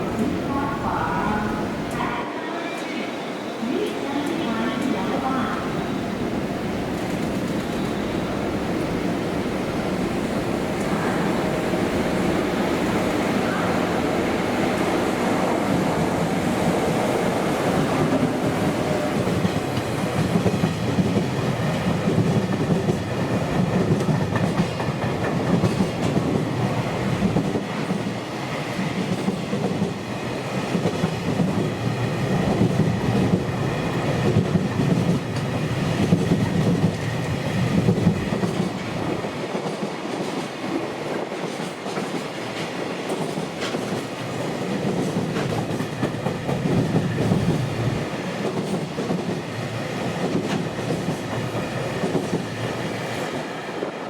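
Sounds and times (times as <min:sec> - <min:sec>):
train wheels clattering over rail joints: 0:19.2 - 0:26.5.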